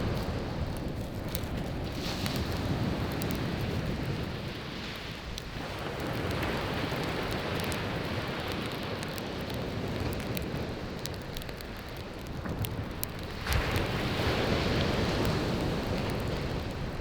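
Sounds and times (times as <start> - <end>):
wood fire crackling and popping: 0.0 - 17.0
sea waves breaking: 13.3 - 17.0.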